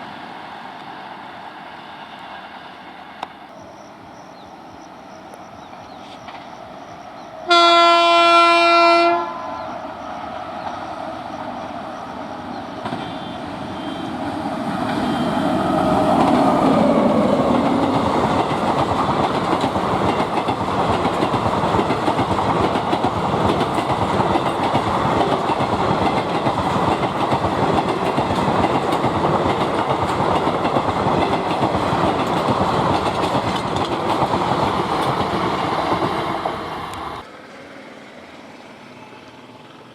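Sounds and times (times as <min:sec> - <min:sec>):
locomotive horn blast: 0:07.5 - 0:09.8
train wheels clattering: 0:12.7 - 0:14.0, 0:14.7 - 0:37.2.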